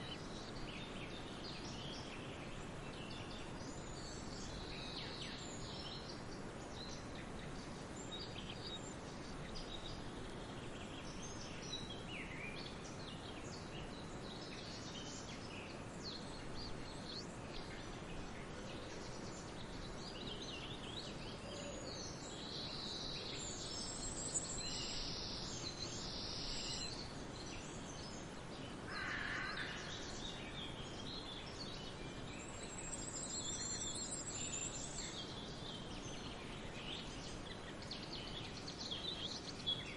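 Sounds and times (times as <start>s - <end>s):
birds singing and calling: 0.0s - 39.9s.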